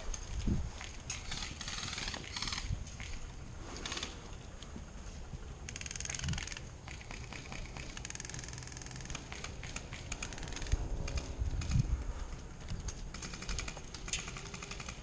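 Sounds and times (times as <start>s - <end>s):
airsoft guns firing bursts: 13.1s - 15.0s.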